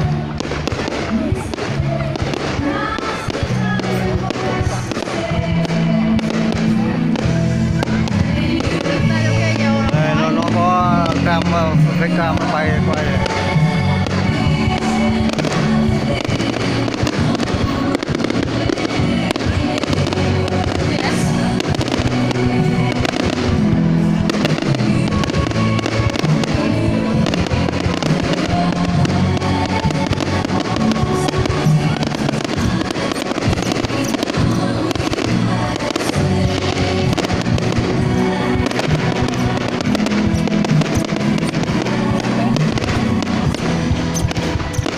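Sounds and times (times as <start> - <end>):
fireworks bangs and crackles: 0.0 - 44.9
loud music playing: 0.0 - 44.9.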